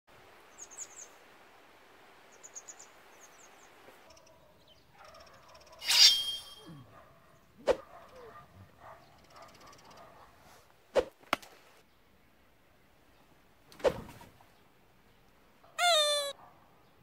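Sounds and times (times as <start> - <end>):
faint outdoor hiss: 0.1 - 17.0
small bird chirping: 15.8 - 16.3.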